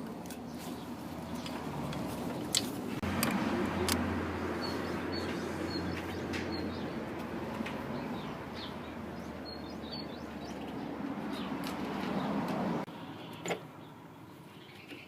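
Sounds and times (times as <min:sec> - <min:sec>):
high bird chirps: 0:07.9 - 0:11.6.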